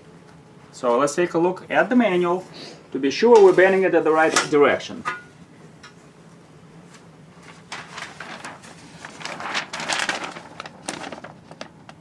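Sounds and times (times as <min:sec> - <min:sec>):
paper pages rustling: 0:06.9 - 0:12.0.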